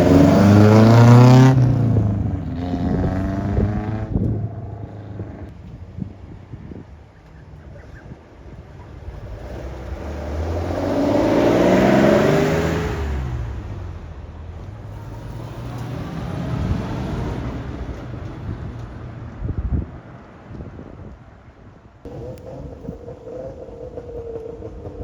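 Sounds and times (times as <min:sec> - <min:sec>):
cars driving past: 0:00.0 - 0:06.5, 0:08.3 - 0:20.7.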